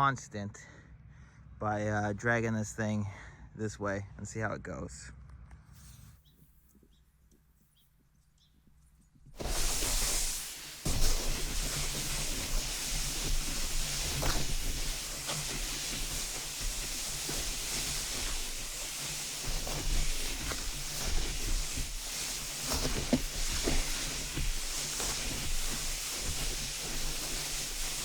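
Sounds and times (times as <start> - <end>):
small snow crunches: 9.3 - 28.0
snowboard sliding on snow: 9.4 - 28.0.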